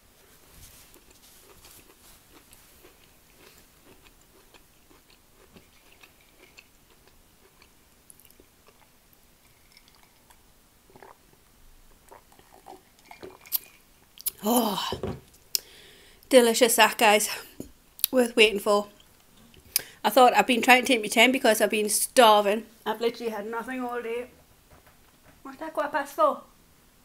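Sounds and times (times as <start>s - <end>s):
chewing with wet mouth clicks: 1.0s - 10.4s, 12.0s - 14.4s
person swallowing a drink: 10.9s - 11.2s, 12.0s - 15.2s.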